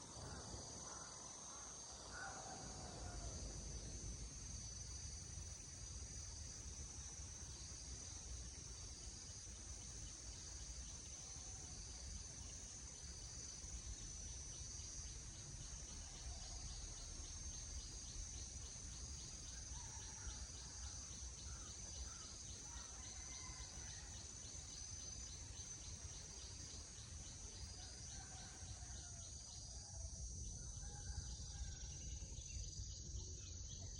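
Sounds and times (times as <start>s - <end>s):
insects buzzing: 0.0s - 33.9s.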